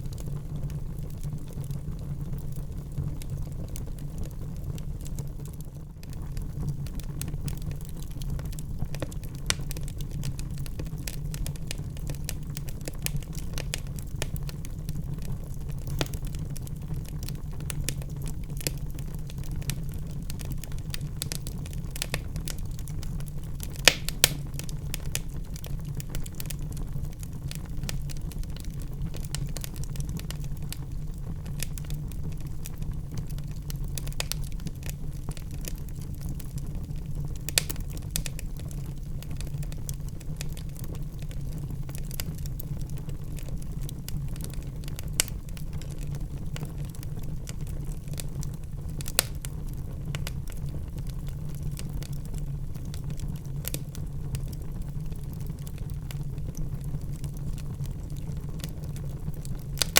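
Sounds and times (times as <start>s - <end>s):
fire low rumble: 0.0s - 59.9s
wood fire crackling and popping: 0.0s - 59.9s.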